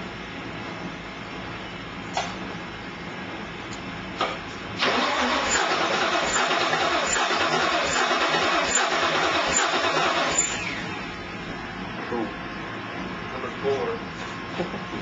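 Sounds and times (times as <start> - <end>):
engine starter cranking: 4.8 - 10.9.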